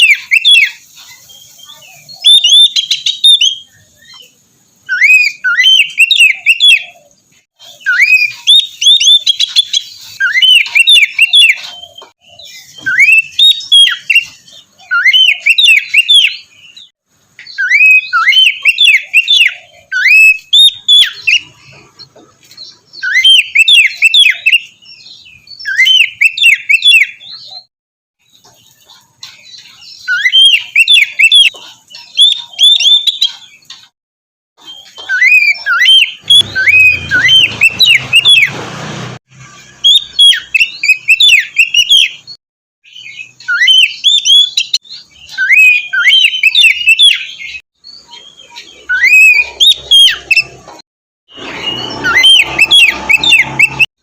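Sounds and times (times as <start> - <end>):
bird singing whistled phrases: 0.0 - 0.8, 1.4 - 7.0, 7.6 - 16.9, 17.5 - 21.5, 23.0 - 27.7, 30.0 - 33.3, 34.7 - 38.5, 39.8 - 50.6, 51.4 - 53.9.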